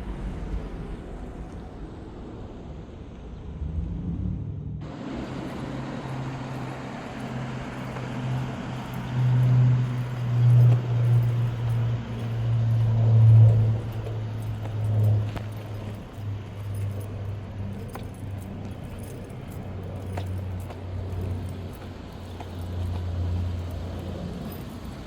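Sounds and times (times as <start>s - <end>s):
car engine drone: 0.0s - 25.0s.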